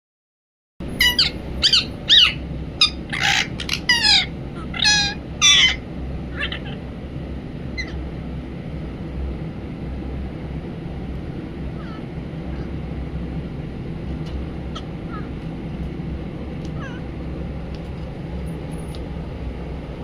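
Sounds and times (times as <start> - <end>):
parakeet squawking and chattering: 0.9 - 6.9, 7.7 - 8.0, 11.7 - 12.8, 14.7 - 15.4, 16.7 - 17.1.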